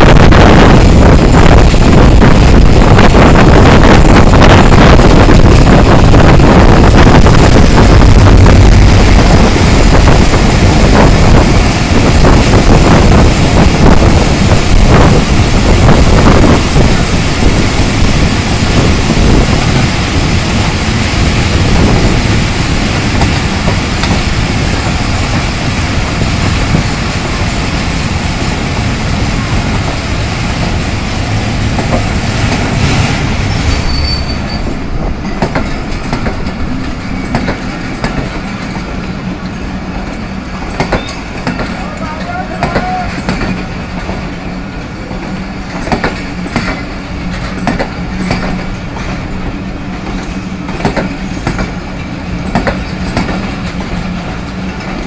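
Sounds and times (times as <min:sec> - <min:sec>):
train rumbling past: 0:00.0 - 0:55.0
wheels clacking over rail joints: 0:16.4 - 0:55.0.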